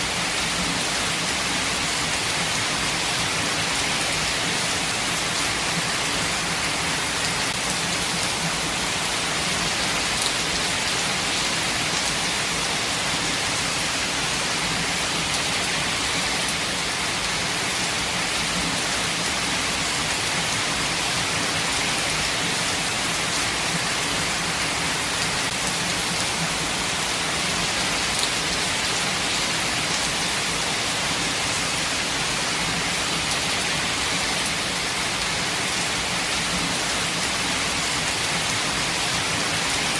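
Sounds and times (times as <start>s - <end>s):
rain pattering on leaves: 0.1s - 19.2s.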